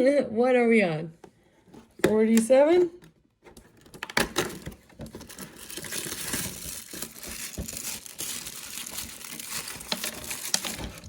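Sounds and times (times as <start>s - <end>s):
plastic wrapping crinkling and tearing: 3.8s - 11.0s.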